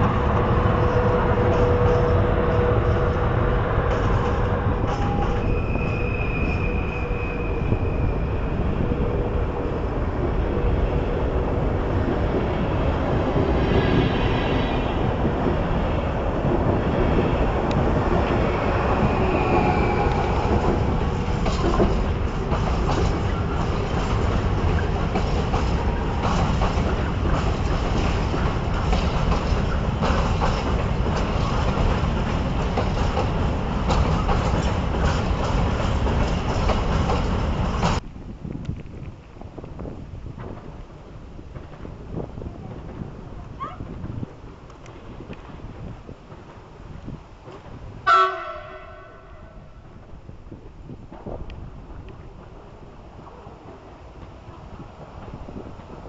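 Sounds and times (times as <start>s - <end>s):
electric train whine: 0.0s - 38.1s
train wheels rumbling on rail: 0.0s - 56.0s
wheel squeals: 4.0s - 8.8s, 18.3s - 21.6s.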